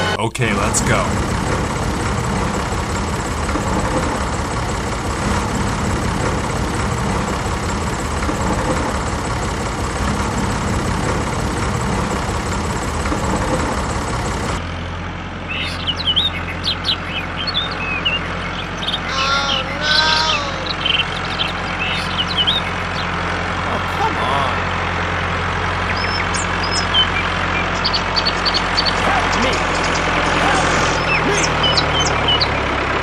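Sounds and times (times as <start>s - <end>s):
short bird chirps: 15.5s - 23.1s.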